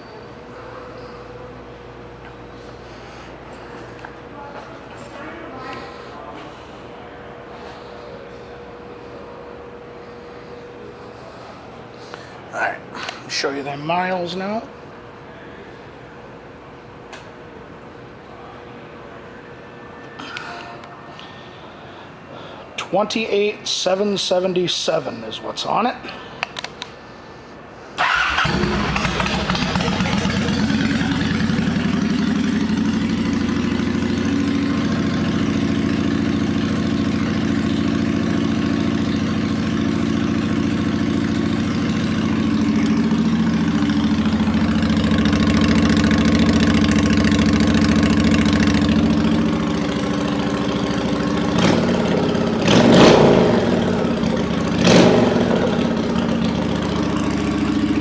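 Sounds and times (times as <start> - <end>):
motorcycle engine idling: 28.0 - 58.0
motorcycle engine revving: 28.0 - 58.0.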